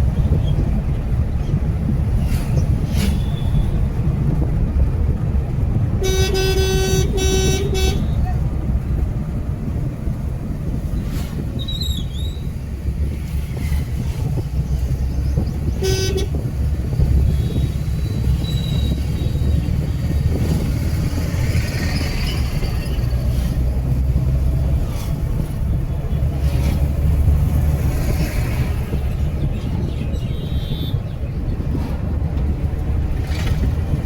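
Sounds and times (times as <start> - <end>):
low rumble of travel noise: 0.0 - 34.0
vehicle horn toot: 6.0 - 8.3, 15.7 - 16.4, 30.2 - 31.1.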